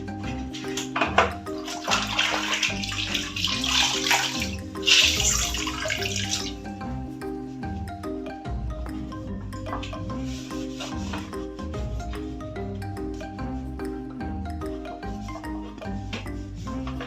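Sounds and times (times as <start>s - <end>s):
marimba music: 0.0s - 17.0s
water running and splashing: 1.5s - 6.6s.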